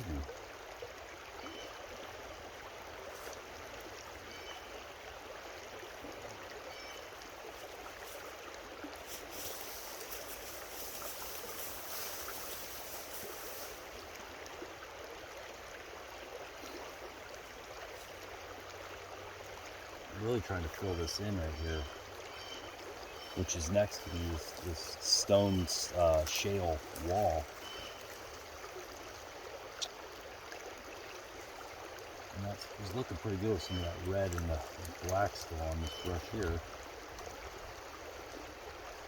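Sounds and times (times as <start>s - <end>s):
creek water over stones: 0.0s - 39.0s.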